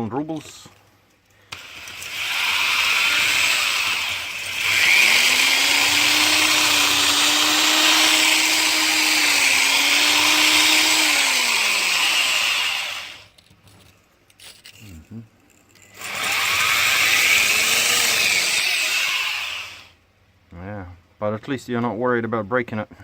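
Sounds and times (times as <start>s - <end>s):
electric drill grinding into concrete: 1.5s - 13.4s, 15.8s - 20.0s.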